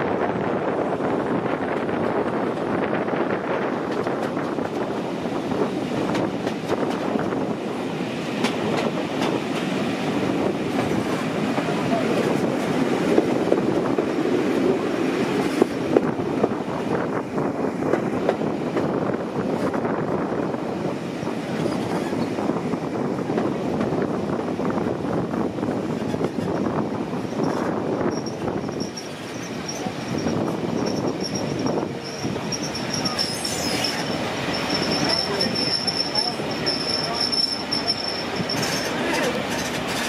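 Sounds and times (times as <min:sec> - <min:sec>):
train wheels rumbling on rails: 0:00.0 - 0:40.0
wheels clicking over rail joints: 0:27.2 - 0:40.0.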